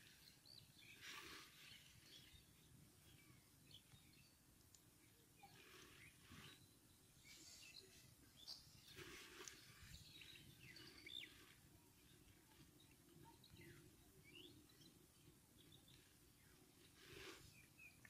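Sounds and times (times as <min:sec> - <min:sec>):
soft rustles: 0:05.6 - 0:13.9.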